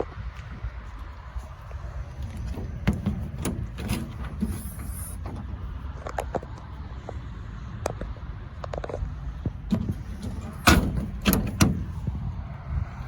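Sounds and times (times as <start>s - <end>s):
low steady rumble: 0.0s - 13.0s
doors clunking: 2.0s - 6.6s, 8.7s - 12.4s
door latch clicks: 2.3s - 5.6s, 9.7s - 12.1s.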